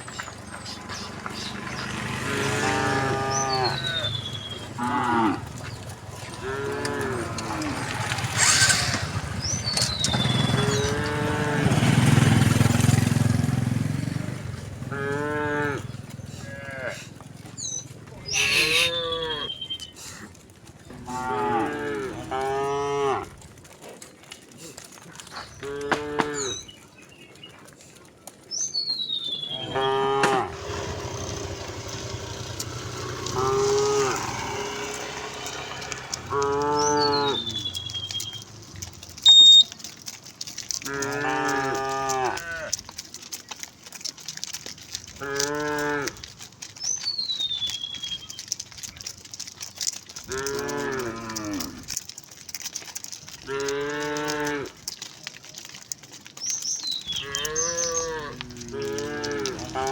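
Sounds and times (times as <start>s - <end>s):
cows mooing: 0.6s - 19.8s, 20.9s - 23.4s, 25.6s - 26.7s, 29.4s - 56.0s, 57.0s - 59.9s
falling whistled calls: 3.1s - 4.8s, 8.3s - 10.9s, 17.6s - 19.9s, 36.7s - 38.6s, 39.2s - 39.8s.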